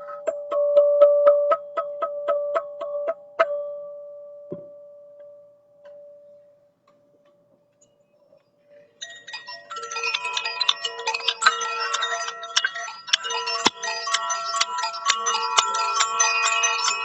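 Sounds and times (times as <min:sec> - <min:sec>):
bell-like struck tone ringing: 0:08.7 - 0:17.0
chimes jingling: 0:08.7 - 0:17.0.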